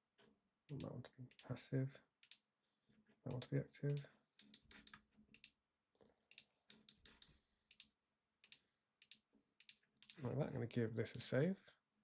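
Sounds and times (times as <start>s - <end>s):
computer mouse and keyboard clicks: 3.3s - 5.6s, 6.3s - 10.2s.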